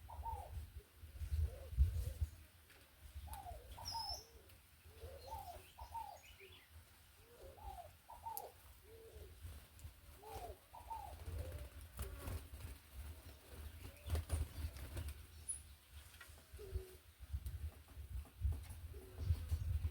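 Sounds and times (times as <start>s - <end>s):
dove cooing: 0.0s - 2.3s, 3.2s - 6.5s, 7.2s - 9.5s, 10.1s - 12.3s, 16.5s - 17.1s
small birds chirping: 3.0s - 12.3s, 13.2s - 17.3s.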